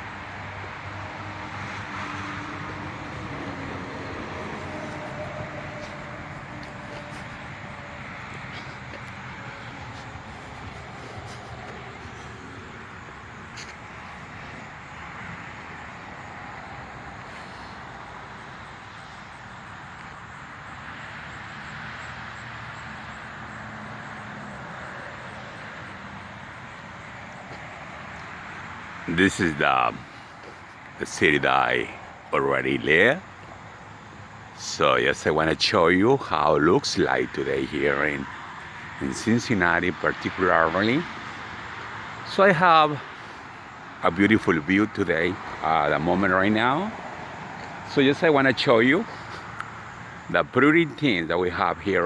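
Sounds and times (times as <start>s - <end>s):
low engine hum: 0.0s - 19.1s
distant road traffic hum: 0.0s - 52.0s
passing cars hissing: 0.0s - 52.0s.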